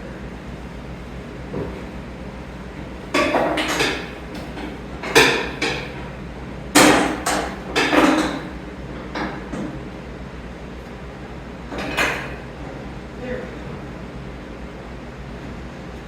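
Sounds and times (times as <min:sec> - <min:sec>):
metal tools clanking: 0:03.2 - 0:06.0.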